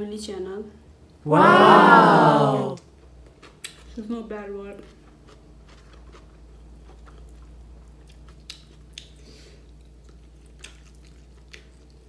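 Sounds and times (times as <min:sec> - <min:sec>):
person chewing food: 0:04.8 - 0:12.0.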